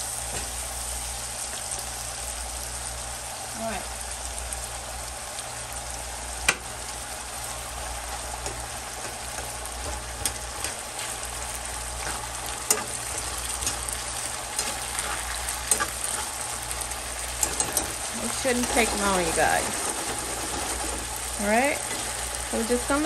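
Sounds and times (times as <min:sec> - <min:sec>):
potatoes sizzling in oil: 0:00.0 - 0:23.0
spoon stirring in pan: 0:08.4 - 0:22.4.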